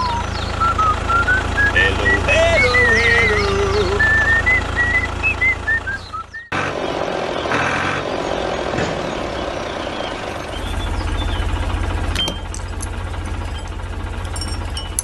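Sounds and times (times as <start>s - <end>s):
high warbling melodic tones: 0.0s - 5.3s.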